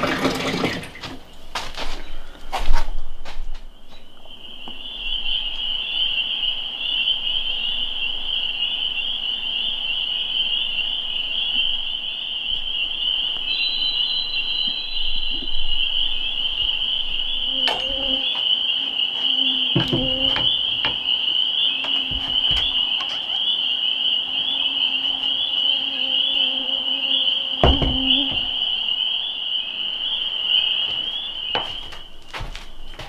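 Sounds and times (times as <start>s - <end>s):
trilling animal chorus: 4.0s - 33.0s
higher animal call: 11.4s - 32.2s.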